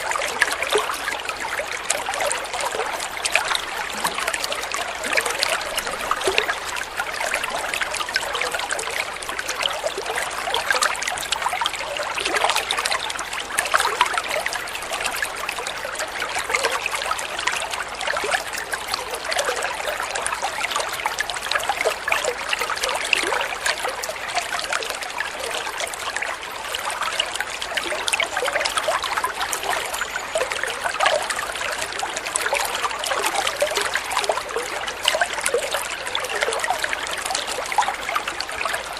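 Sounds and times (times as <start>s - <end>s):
water trickling and babbling: 0.0s - 38.9s.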